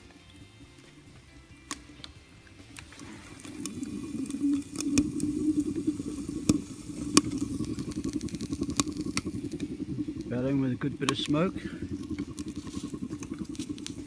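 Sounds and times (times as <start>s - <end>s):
crackling and popping sticks: 0.0s - 14.0s
fire fluttering rumble: 0.0s - 14.0s.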